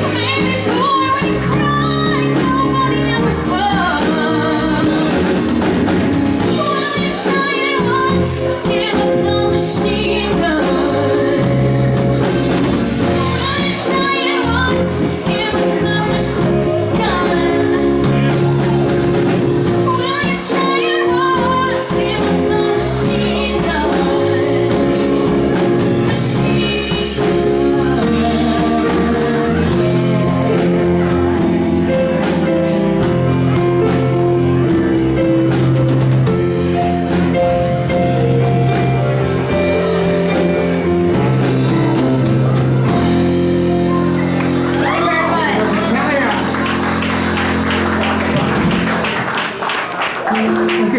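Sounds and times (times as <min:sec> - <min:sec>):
woman singing: 0:00.0 - 0:05.7, 0:06.3 - 0:32.3
drum kit with cymbals: 0:00.0 - 0:49.2
electric bass: 0:00.0 - 0:49.2
keyboard: 0:00.0 - 0:49.6.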